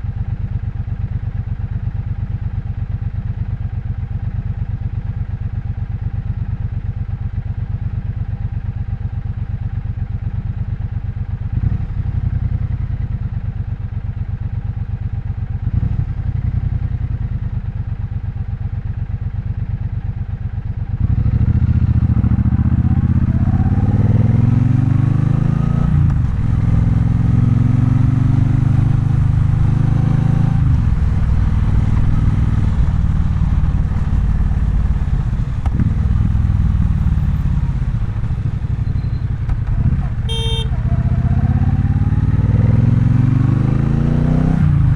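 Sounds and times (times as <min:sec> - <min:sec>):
motorcycle engine revving: 0:21.0 - 0:44.9.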